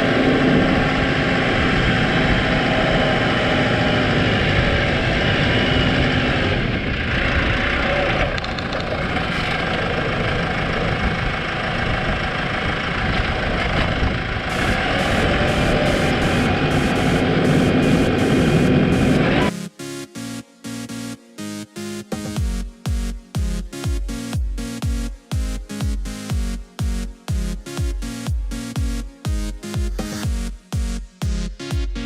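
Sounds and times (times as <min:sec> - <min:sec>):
tractor diesel engine running: 0:00.0 - 0:19.5.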